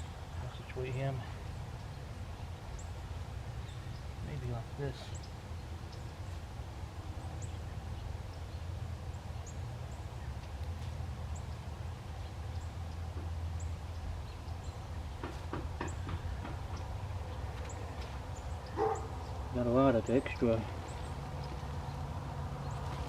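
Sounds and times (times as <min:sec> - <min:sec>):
bird chirping: 0:11.3 - 0:23.0.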